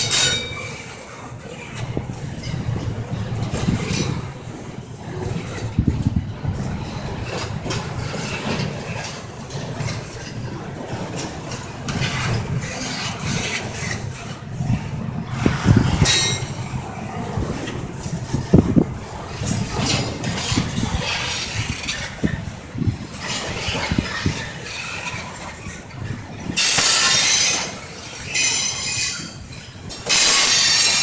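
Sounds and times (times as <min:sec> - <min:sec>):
sharp metallic clanks: 0:00.0 - 0:00.8, 0:03.9 - 0:04.5, 0:16.0 - 0:16.6, 0:30.0 - 0:31.0
train wheels rumbling on rail: 0:00.0 - 0:31.0
high metallic screech: 0:26.6 - 0:29.4, 0:30.1 - 0:31.0.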